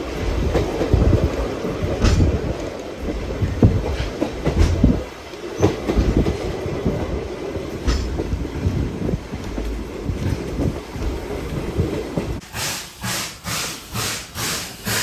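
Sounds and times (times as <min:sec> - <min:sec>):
train wheels clacking on rails: 0:00.0 - 0:15.0.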